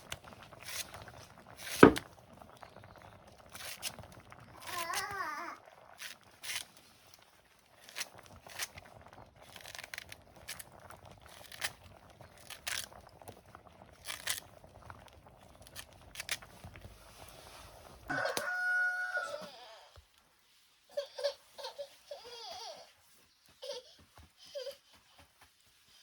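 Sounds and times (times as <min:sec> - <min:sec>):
rooster crowing: 0:18.1 - 0:19.9.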